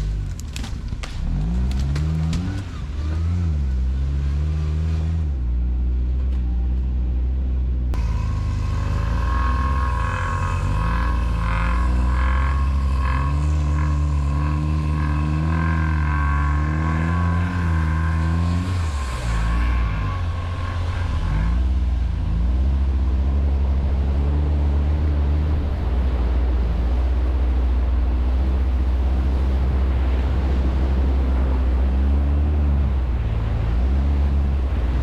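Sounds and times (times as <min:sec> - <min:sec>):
high steady whine: 0:08.0 - 0:35.0
quad bike engine revving: 0:08.0 - 0:35.0.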